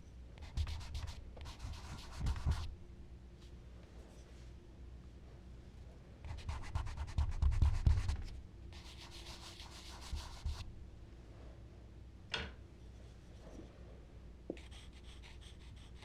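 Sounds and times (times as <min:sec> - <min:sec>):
charcoal scratching on paper: 0:00.4 - 0:02.7, 0:06.3 - 0:10.6, 0:14.6 - 0:16.0
charcoal rubbing on paper: 0:08.8 - 0:10.6, 0:14.6 - 0:16.0.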